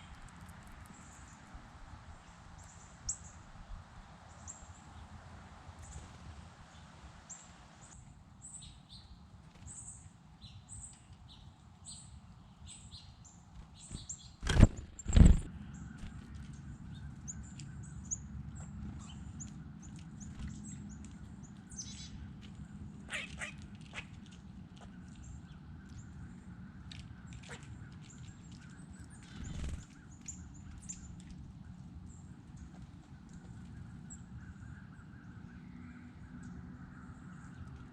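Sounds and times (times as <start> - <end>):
small birds chirping: 8.4 - 37.9
loud thumps: 14.4 - 15.5.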